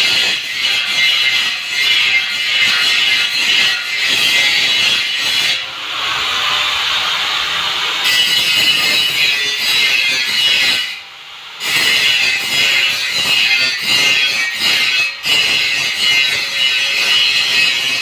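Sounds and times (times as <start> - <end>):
angle grinder grinding metal: 0.0 - 11.0, 11.6 - 18.0.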